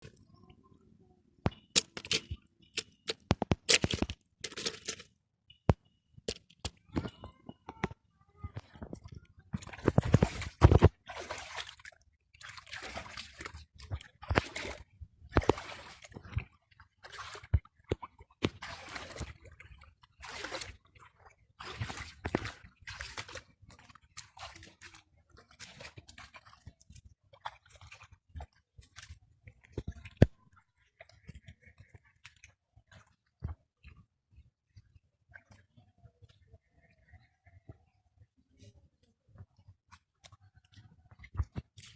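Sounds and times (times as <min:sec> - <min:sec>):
hands splashing in muddy water: 0:09.6 - 0:19.6, 0:20.2 - 0:26.7.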